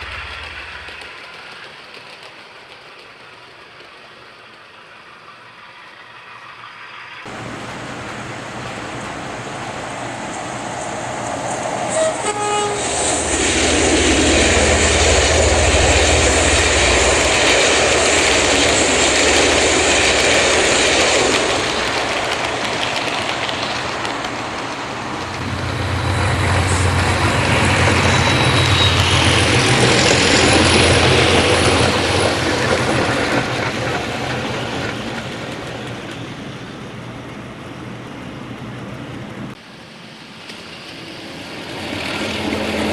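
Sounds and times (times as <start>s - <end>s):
passing train rumble: 0.0s - 42.9s
train horn toot: 11.8s - 13.4s.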